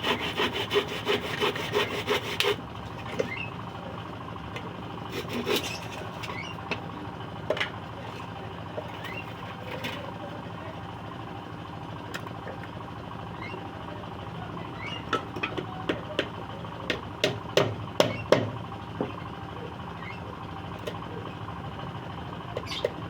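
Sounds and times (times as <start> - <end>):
hammer knocking on wood: 15.2 - 19.2.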